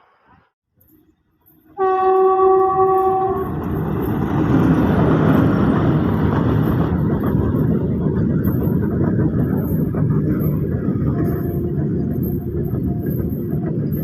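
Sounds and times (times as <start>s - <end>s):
train passing rumble: 0.0s - 14.0s
train horn blast: 1.8s - 3.7s.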